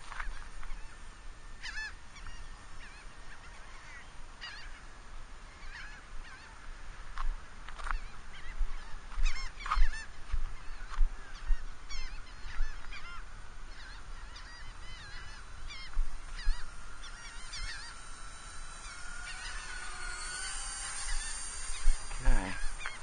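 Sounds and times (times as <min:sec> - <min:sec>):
model airplane electric motors whine: 0:07.7 - 0:23.0
honking bird calls: 0:08.4 - 0:23.0.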